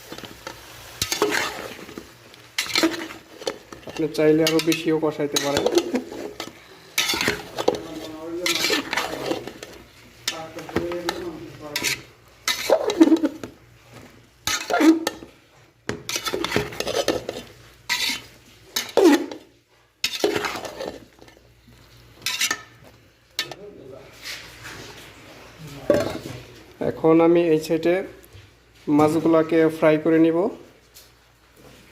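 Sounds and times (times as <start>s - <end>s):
spoon scraping cooking pot: 0.0s - 13.6s, 14.4s - 21.5s, 22.1s - 23.6s
light sizzle: 0.0s - 31.9s.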